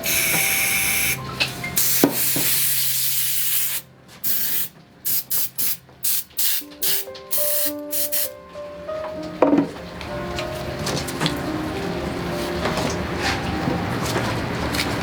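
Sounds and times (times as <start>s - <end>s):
spray paint can hissing: 0.0s - 1.2s, 1.8s - 8.3s.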